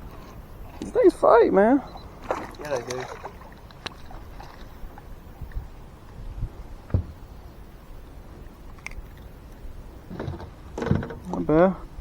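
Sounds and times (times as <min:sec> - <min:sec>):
light knocks: 0:06.9 - 0:07.2.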